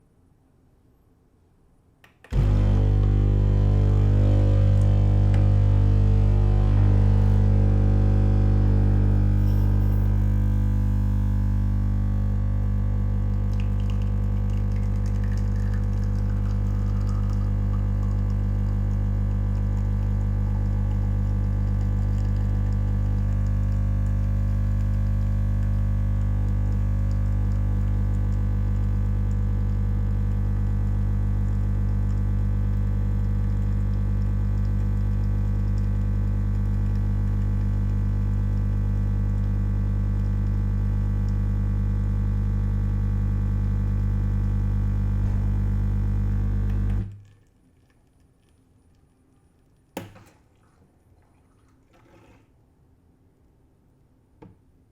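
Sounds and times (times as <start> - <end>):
espresso machine pump buzzing: 2.3 - 47.1.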